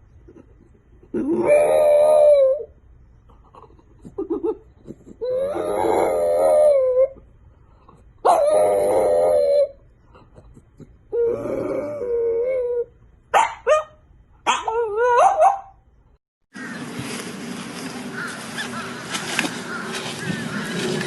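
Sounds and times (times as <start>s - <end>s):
dog howling: 1.3s - 2.7s, 5.2s - 7.2s, 8.3s - 9.8s.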